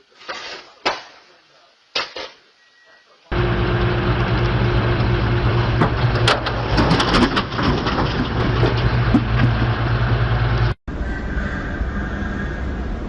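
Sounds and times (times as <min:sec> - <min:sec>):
steady hum: 0:03.2 - 0:13.0
vehicle engine running: 0:03.3 - 0:10.8.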